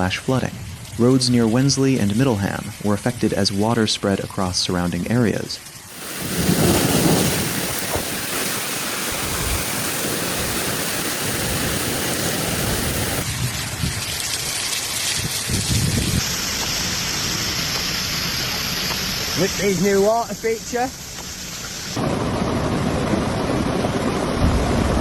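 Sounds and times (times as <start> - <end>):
heavy rain falling: 5.9 - 13.3, 14.2 - 25.0.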